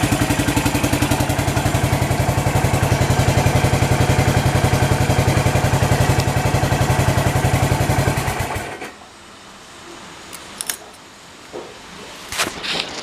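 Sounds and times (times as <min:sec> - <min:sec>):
motorcycle engine idling: 0:00.0 - 0:08.9.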